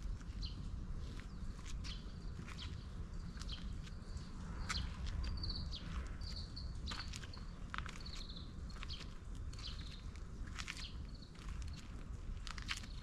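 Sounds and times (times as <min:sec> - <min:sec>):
small birds chirping: 0:00.0 - 0:13.0
steady low rumble: 0:00.0 - 0:13.0.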